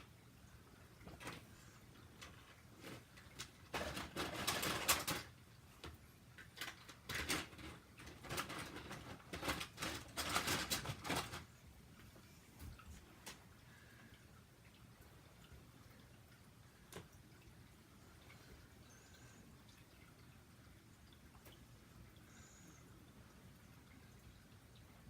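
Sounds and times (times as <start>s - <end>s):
toy train track pieces clattering: 3.4s - 5.3s, 6.4s - 11.5s.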